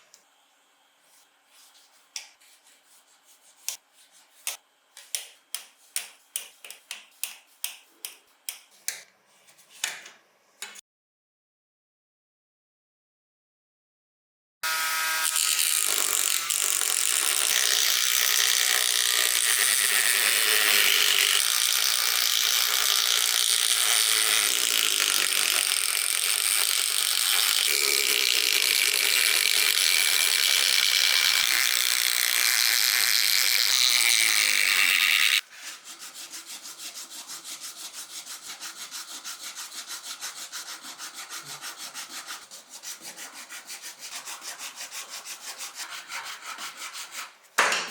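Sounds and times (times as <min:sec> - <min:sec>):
hand sanding strokes: 0:01.0 - 0:04.6, 0:05.2 - 0:09.7, 0:33.7 - 0:47.5
power tool grinding: 0:14.6 - 0:35.4.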